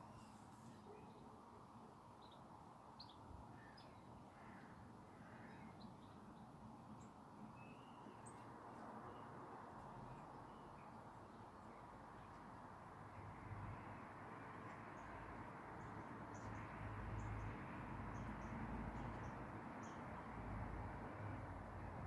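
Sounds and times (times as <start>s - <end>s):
wild birds chirping: 2.1s - 12.5s.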